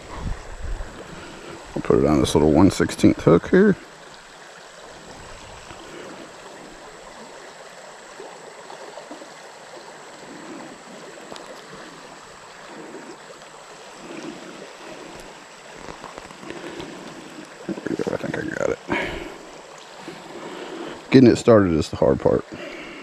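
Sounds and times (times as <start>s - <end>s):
creek water rushing: 0.0s - 23.0s.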